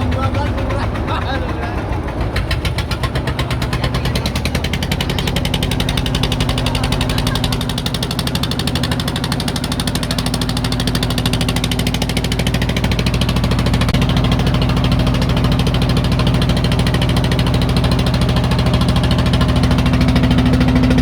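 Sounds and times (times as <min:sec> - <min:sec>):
small engine running: 0:00.0 - 0:21.0.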